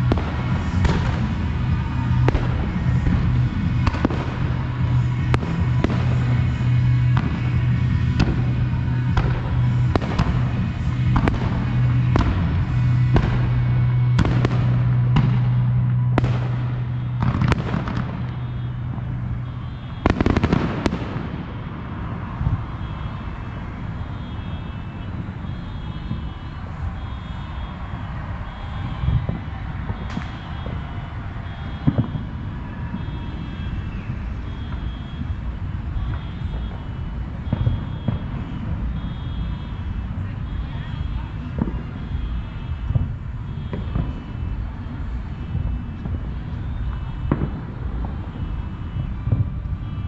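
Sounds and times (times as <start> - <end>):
firework shells bursting: 19.6 - 21.6.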